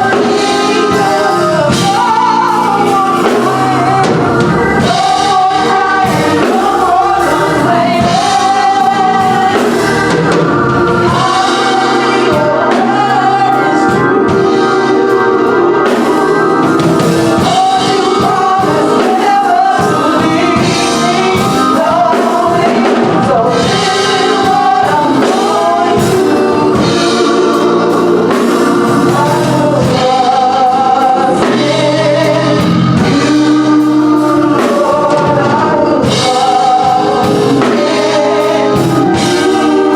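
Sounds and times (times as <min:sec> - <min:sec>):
gospel choir singing: 0:00.0 - 0:39.9
instrumental backing with drums: 0:00.0 - 0:39.9.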